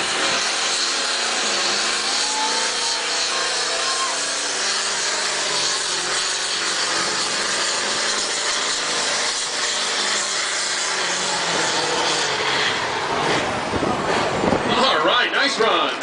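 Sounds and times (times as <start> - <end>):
tractor engine running hard: 0.0 - 16.0.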